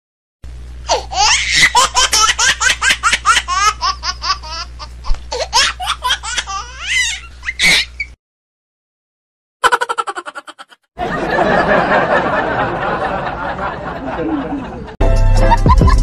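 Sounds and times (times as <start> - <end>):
steady low hum: 0.4 - 8.2
high-pitched giggling: 1.1 - 8.1, 9.6 - 10.8.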